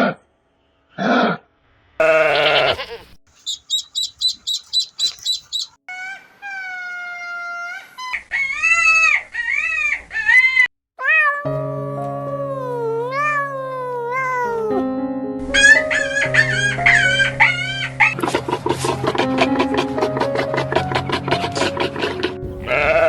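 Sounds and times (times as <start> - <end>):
animal bleat: 2.0 - 3.2, 22.6 - 23.0
rising and falling calls: 2.0 - 7.0
high chirps: 3.3 - 5.8.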